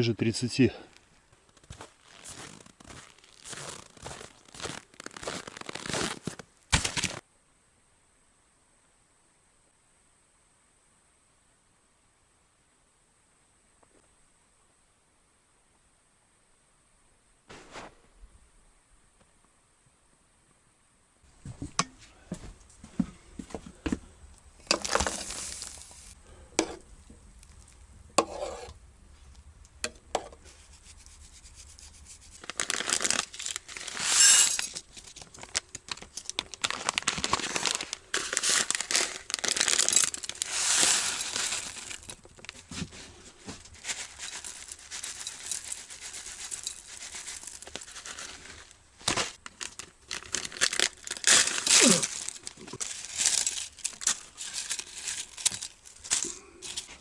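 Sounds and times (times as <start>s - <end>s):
crinkling and rustling: 0.8s - 7.2s, 21.3s - 57.0s.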